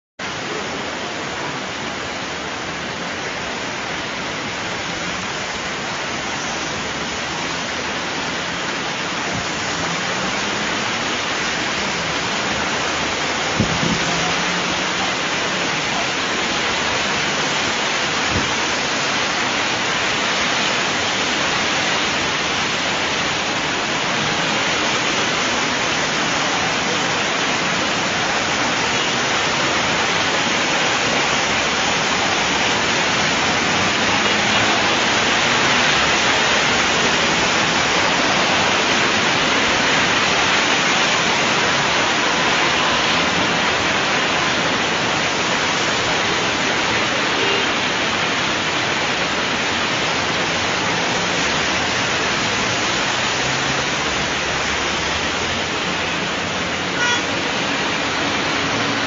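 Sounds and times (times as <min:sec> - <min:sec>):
heavy rain and floodwater rushing: 0:00.0 - 0:59.0.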